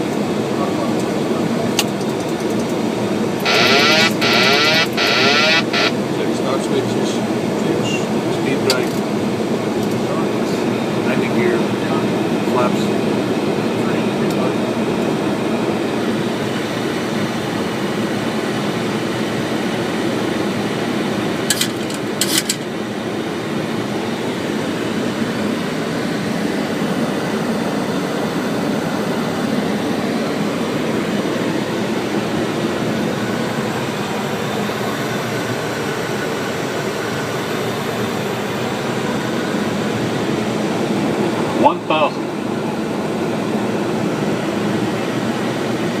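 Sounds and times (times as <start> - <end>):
rushing rumble of air and engines: 0.0 - 46.0.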